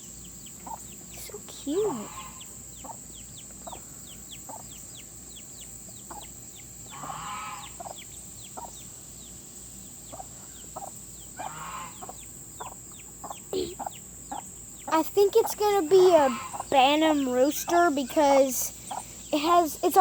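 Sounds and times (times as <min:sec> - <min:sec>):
chick peeping: 0:00.0 - 0:20.0
hen clucking: 0:00.4 - 0:08.9, 0:09.8 - 0:20.0
harsh hen calls: 0:00.6 - 0:03.0, 0:06.1 - 0:08.0, 0:10.1 - 0:20.0.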